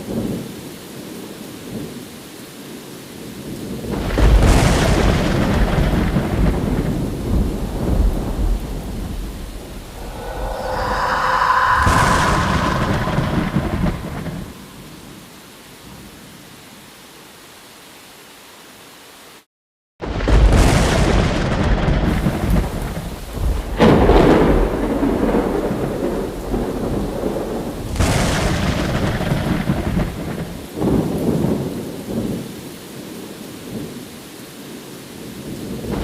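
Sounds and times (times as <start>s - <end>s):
steady rain hiss: 0.0s - 19.5s, 20.7s - 36.0s
thunder crash rolling: 4.0s - 15.1s, 20.1s - 30.5s.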